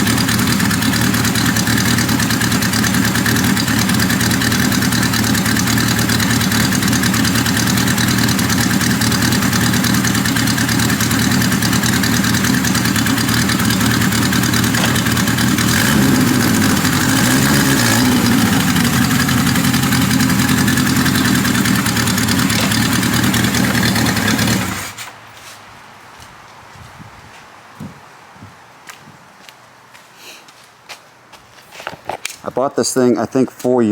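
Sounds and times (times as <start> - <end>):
motorcycle engine idling: 0.0 - 25.1.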